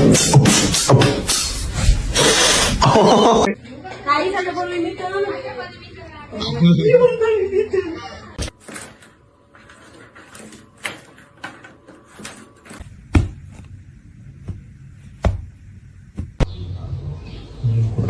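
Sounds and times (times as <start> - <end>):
sharp knocks and thumps: 0.0 - 2.0, 14.4 - 16.6.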